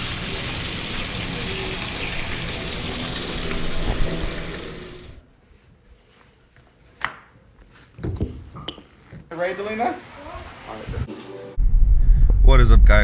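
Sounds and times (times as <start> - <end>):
water running: 0.0 - 5.2.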